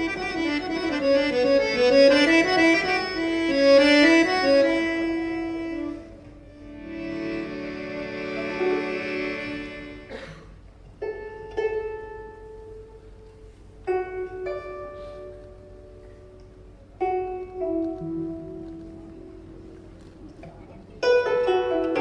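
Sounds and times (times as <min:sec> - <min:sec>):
sustained chord: 0:00.0 - 0:10.1
plucked string instrument: 0:00.0 - 0:22.0.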